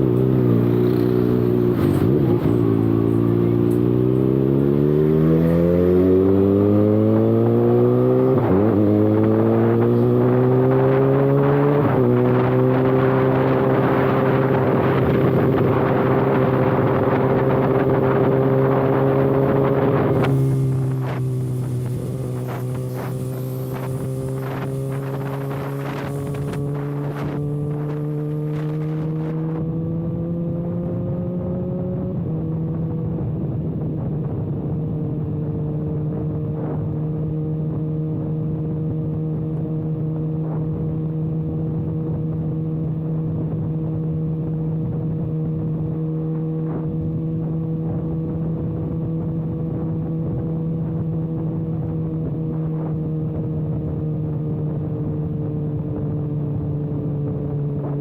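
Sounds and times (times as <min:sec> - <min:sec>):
motorcycle open exhaust: 0:00.0 - 0:58.0.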